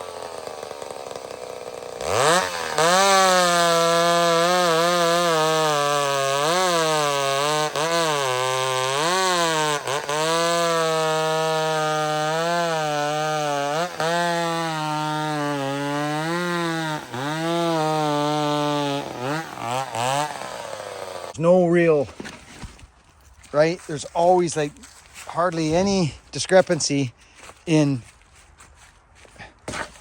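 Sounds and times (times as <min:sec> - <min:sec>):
chainsaw cutting wood: 0:00.0 - 0:21.4.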